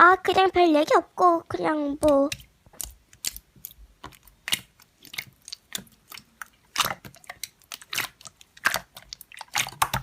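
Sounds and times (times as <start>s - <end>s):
slime squishing and crackling: 0.0s - 10.0s.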